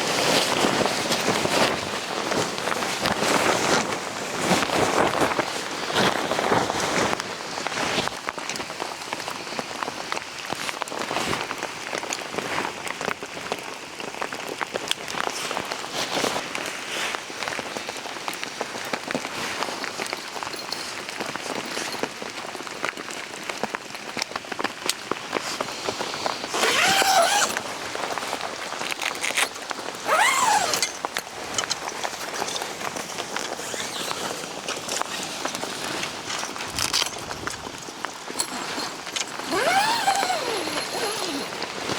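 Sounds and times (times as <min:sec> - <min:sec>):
rain falling on leaves: 0:07.2 - 0:26.5.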